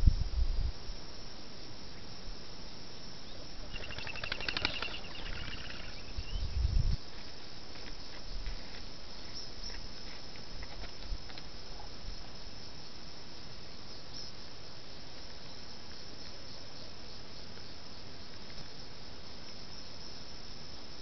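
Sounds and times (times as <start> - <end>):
wind rumble on microphone: 0.0 - 1.0, 5.1 - 7.1
faint bird chirps: 1.8 - 7.0, 13.7 - 14.4, 15.4 - 18.8
bird rattling call: 3.6 - 6.6.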